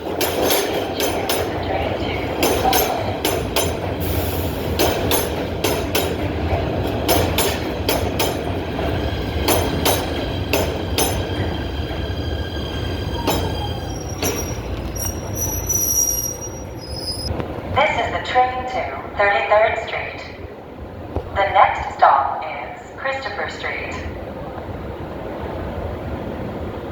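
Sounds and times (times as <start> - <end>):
wheels clacking over rail joints: 0.0 - 17.3
train rumbling on rails: 0.0 - 26.9
wheel squeal: 12.2 - 17.3.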